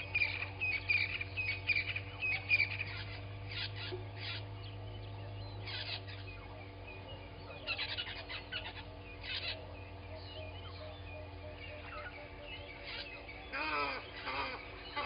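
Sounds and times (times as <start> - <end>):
steady low hum: 0.0 - 15.0
wild birds chirping and whistling: 0.0 - 15.0.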